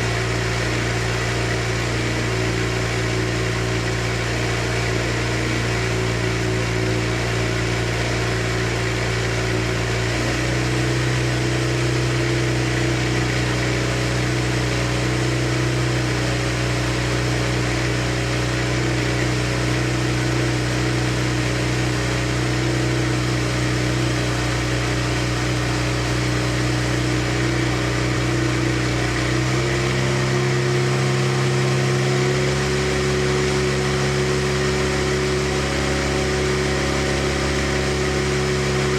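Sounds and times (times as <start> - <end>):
rotary engine idling: 10.8 - 38.9.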